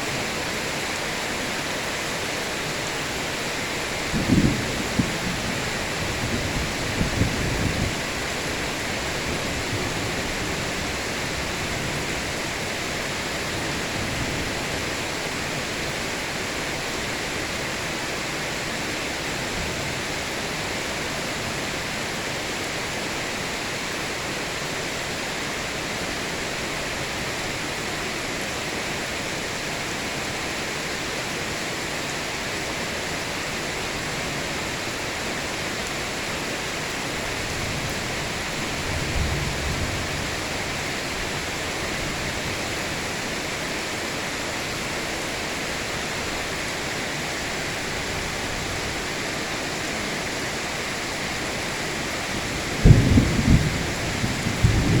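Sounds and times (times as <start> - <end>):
heavy rain hissing: 0.0 - 55.0
low rumbles of thunder: 4.0 - 8.2, 37.5 - 42.5, 52.5 - 55.0.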